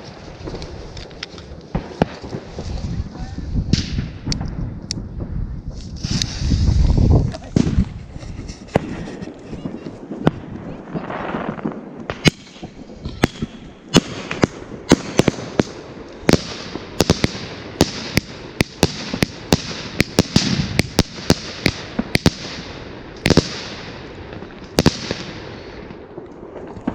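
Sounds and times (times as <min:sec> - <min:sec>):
firework bangs: 0:00.0 - 0:26.9
firework hissing: 0:05.7 - 0:10.2.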